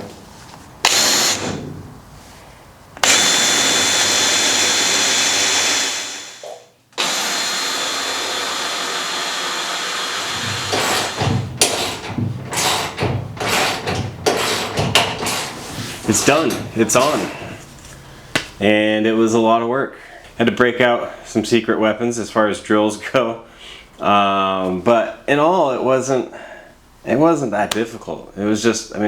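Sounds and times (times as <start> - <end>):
power drill drilling: 0.8 - 1.6, 3.0 - 15.5.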